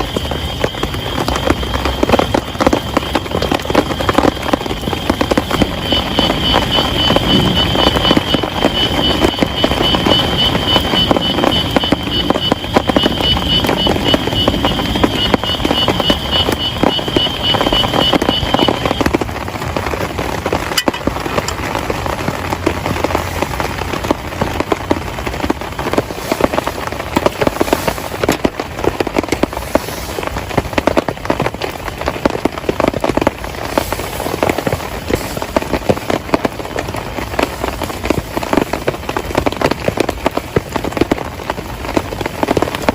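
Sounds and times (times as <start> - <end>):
heavy rain pattering: 0.0 - 42.9.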